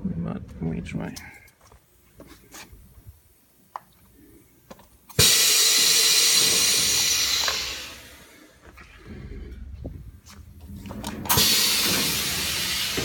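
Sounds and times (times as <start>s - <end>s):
compressed air hissing: 5.1s - 8.6s, 11.3s - 13.0s.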